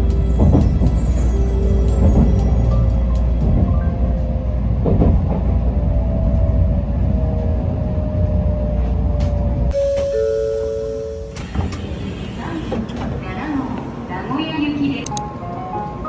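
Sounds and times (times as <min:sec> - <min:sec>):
train rumbling: 0:00.0 - 0:16.0
door chime electronic tones: 0:09.7 - 0:11.8.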